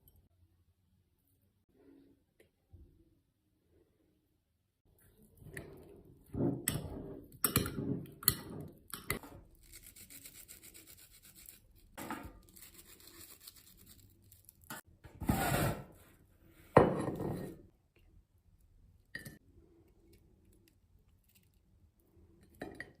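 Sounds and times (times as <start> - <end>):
scraping on crusty bread: 9.6 - 14.8.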